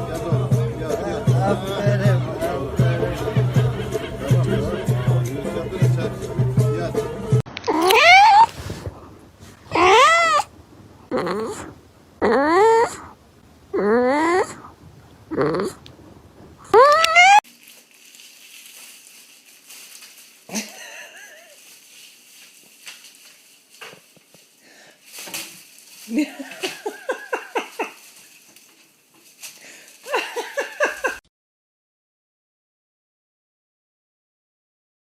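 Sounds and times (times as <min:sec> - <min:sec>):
cat meowing: 0:07.7 - 0:08.6, 0:09.7 - 0:10.5, 0:11.1 - 0:14.7, 0:15.3 - 0:15.8, 0:16.7 - 0:17.4
pet animal short cries: 0:07.7 - 0:08.6, 0:09.7 - 0:10.5, 0:11.1 - 0:13.1, 0:16.7 - 0:17.4.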